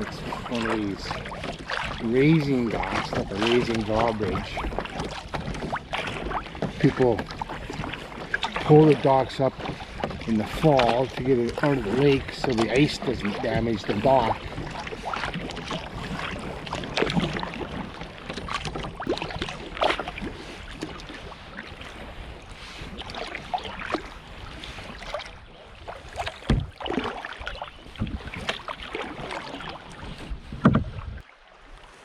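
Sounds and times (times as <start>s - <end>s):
paddle splashing in water: 0.0s - 32.0s
water wash and wind noise: 0.0s - 32.0s.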